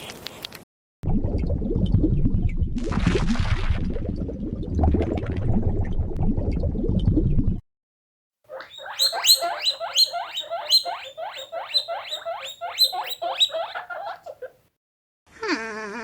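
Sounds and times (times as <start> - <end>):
squirrel chirping: 8.5 - 14.5.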